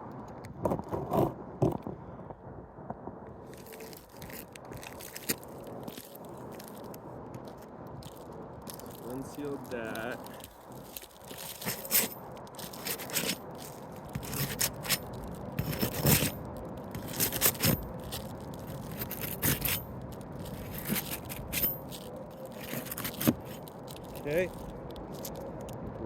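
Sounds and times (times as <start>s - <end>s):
roof shingles scraping and crackling: 3.5s - 25.8s.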